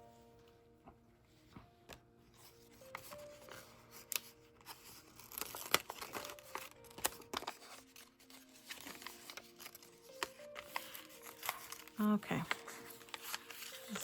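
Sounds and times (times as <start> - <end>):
stickers peeling and tearing: 4.0 - 14.0.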